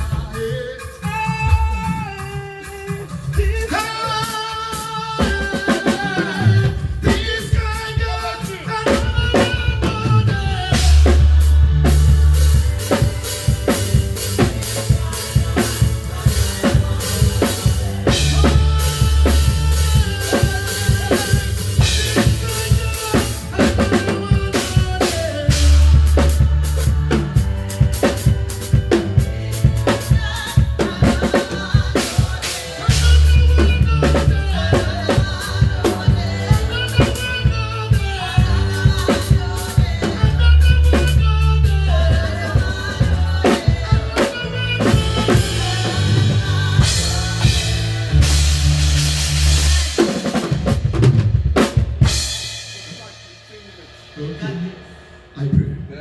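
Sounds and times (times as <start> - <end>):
drum kit beat: 0.0 - 55.9
live band playing: 0.0 - 55.9.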